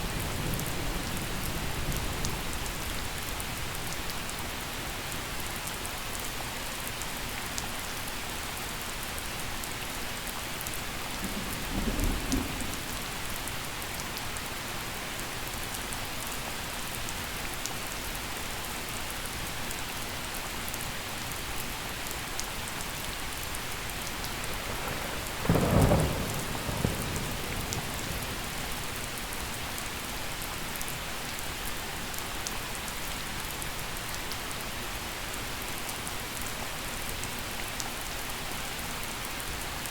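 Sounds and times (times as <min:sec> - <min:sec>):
gentle rain: 0:00.0 - 0:39.9
thunder rumbling: 0:11.0 - 0:13.7, 0:23.8 - 0:30.5.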